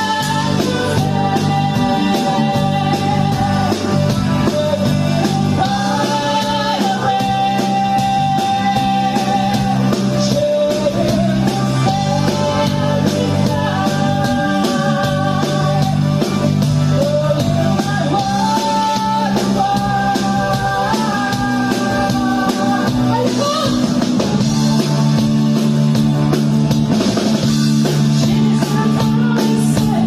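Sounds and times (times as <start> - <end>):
person singing long notes: 0.0 - 16.2, 16.9 - 23.8
rock band playing: 0.0 - 30.0.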